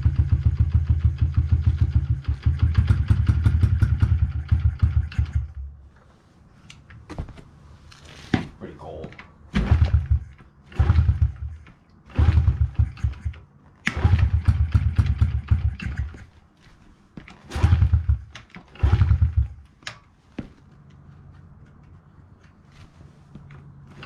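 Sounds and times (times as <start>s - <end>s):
small engine cranking and firing: 0.0s - 5.6s, 9.6s - 16.2s, 17.4s - 19.6s.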